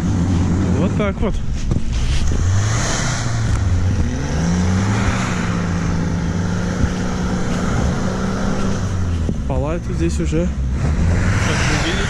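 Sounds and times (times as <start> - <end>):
off-road engine revving: 0.0 - 12.0.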